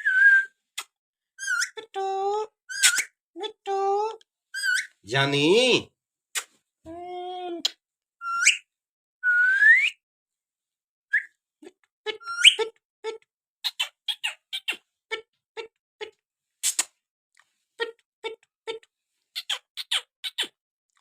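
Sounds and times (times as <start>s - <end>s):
parrot whistling: 0.0s - 0.5s, 8.2s - 8.6s, 9.2s - 10.0s, 12.1s - 12.7s.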